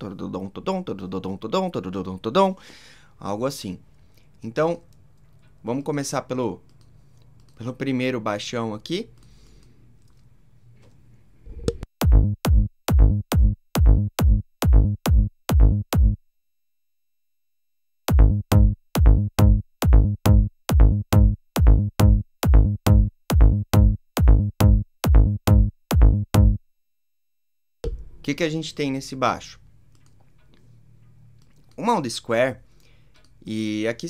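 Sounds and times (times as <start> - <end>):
electronic kick drum and bass loop: 12.0 - 16.2, 18.1 - 26.6.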